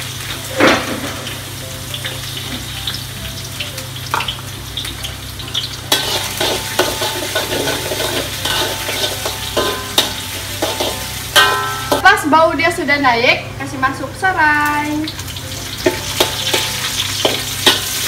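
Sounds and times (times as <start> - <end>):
shallots sizzling in oil: 0.0 - 18.0
metal spatula scraping wok: 5.9 - 12.0, 15.7 - 18.0.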